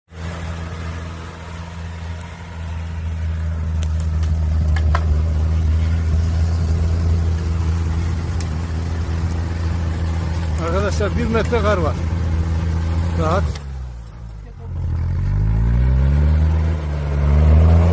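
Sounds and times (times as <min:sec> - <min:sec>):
vehicle engine running under load: 0:00.1 - 0:17.9.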